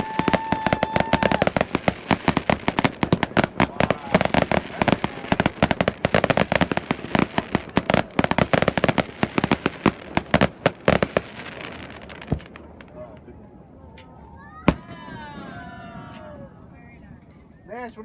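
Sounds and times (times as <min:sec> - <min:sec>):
fireworks crackling bangs: 0:00.0 - 0:13.3.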